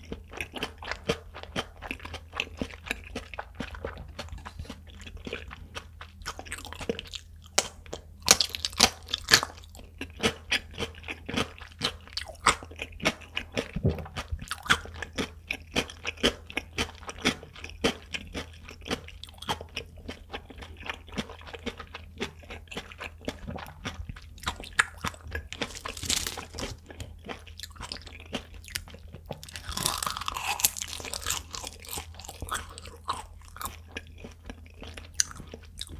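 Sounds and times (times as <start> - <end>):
crunchy chewing: 0.0 - 35.9.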